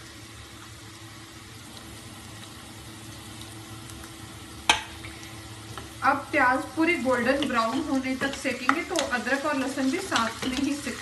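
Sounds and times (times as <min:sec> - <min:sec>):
onions sizzling in oil: 0:00.0 - 0:11.0
wooden spoon stirring: 0:07.1 - 0:11.0.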